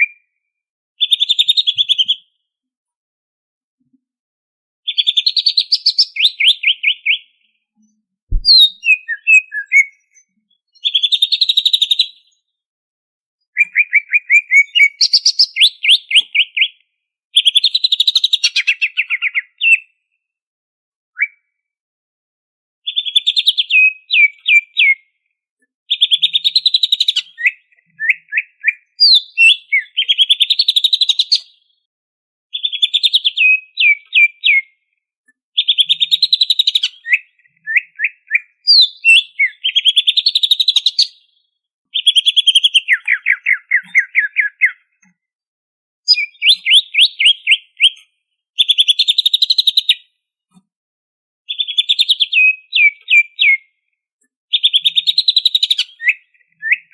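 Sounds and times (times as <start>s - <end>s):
bird singing fast chattering notes: 8.3s - 9.8s, 46.1s - 48.0s.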